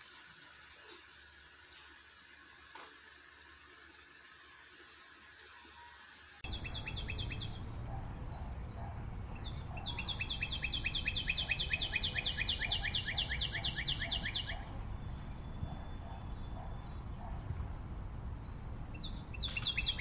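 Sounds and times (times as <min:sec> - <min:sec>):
bird trilling: 0:06.4 - 0:07.7, 0:09.4 - 0:17.4, 0:19.0 - 0:20.0.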